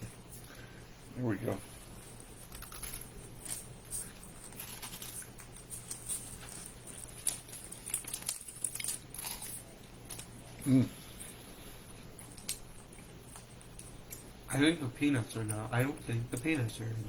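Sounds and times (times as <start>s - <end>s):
plastic wrapper crinkling: 1.8s - 10.3s.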